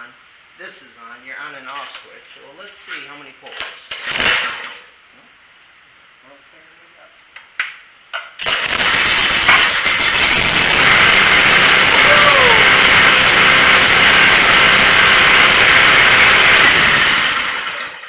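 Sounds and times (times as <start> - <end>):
recoil starter pull: 8.4 - 18.0
pressure washer engine running: 8.5 - 18.0.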